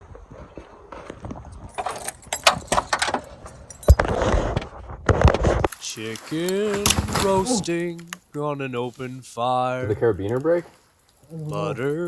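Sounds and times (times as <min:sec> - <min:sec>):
rustling: 0:01.0 - 0:09.2
metal gear jangling: 0:01.6 - 0:04.2.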